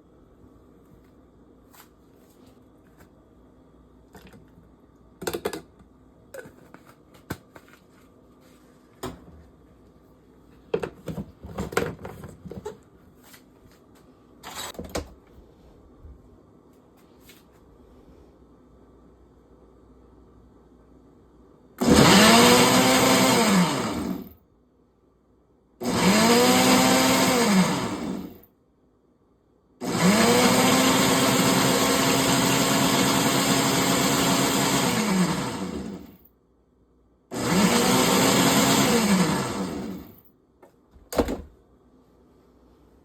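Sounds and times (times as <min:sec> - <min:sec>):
electric blender whirring: 0:21.8 - 0:24.3, 0:25.8 - 0:28.4, 0:29.8 - 0:36.2, 0:37.3 - 0:40.1.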